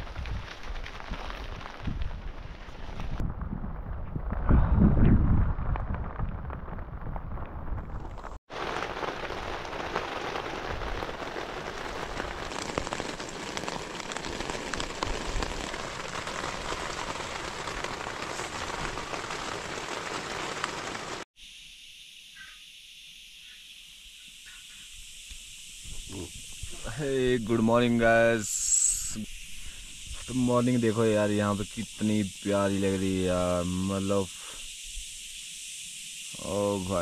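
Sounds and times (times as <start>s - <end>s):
heavy rain on a tent: 0.0s - 3.2s, 7.9s - 21.3s
wind rumble on microphone: 0.0s - 8.4s.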